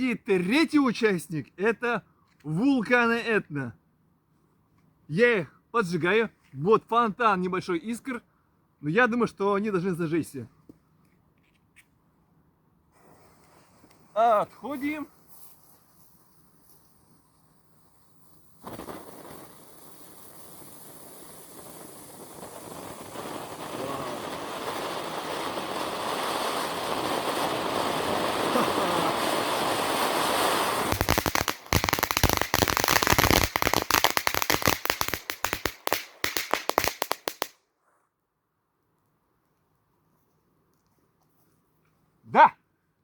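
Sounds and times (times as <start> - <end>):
firework fountain hissing: 12.9 - 14.2, 14.8 - 37.5
firework crackling: 12.9 - 37.6.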